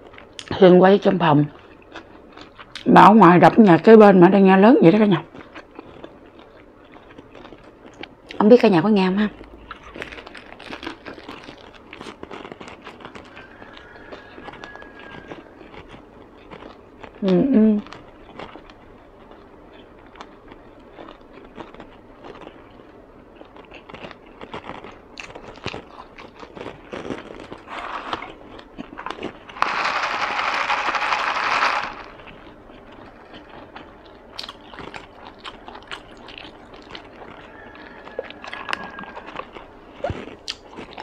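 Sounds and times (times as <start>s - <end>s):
chewing with wet mouth clicks: 5.3s - 8.4s, 9.3s - 29.5s, 32.2s - 41.0s.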